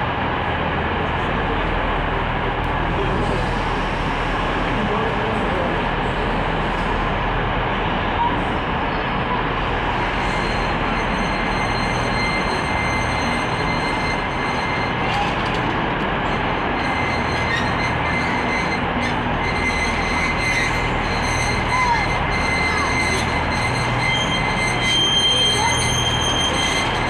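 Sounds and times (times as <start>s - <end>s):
thin steady whine: 0.0s - 27.0s
train rumble: 0.0s - 27.0s
train squeal: 8.2s - 27.0s.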